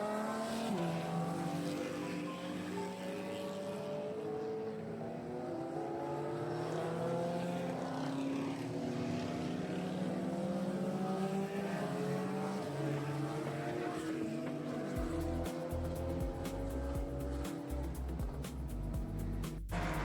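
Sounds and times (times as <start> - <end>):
vehicle engine running under load: 15.0 - 20.0.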